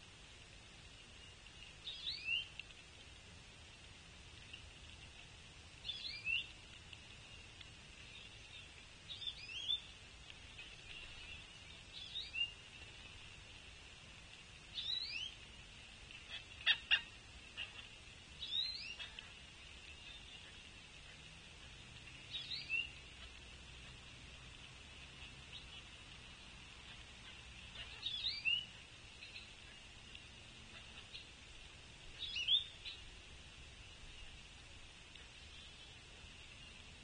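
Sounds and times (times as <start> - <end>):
songbird whistled call: 1.2 - 2.5, 5.8 - 6.5, 8.1 - 9.9, 11.1 - 12.6, 14.7 - 15.4, 18.4 - 19.2, 22.2 - 23.0, 27.9 - 29.5, 32.2 - 33.0.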